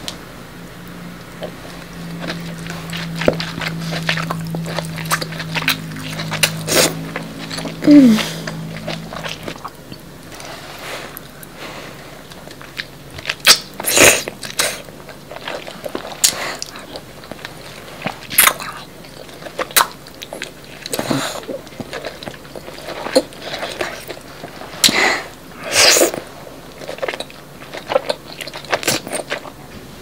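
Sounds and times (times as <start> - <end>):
wet chewing: 0.9 - 25.0, 25.7 - 29.6.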